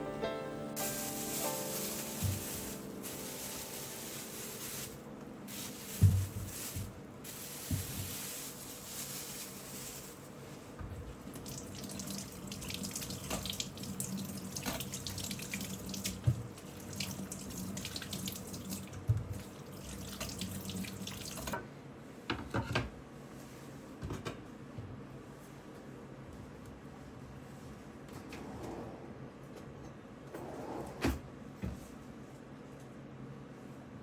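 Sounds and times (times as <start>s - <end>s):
tap running into sink: 0.9s - 2.8s, 5.9s - 7.0s, 7.6s - 8.2s, 11.4s - 13.8s, 14.5s - 17.2s
clinks and knocks of dishes: 22.3s - 22.9s.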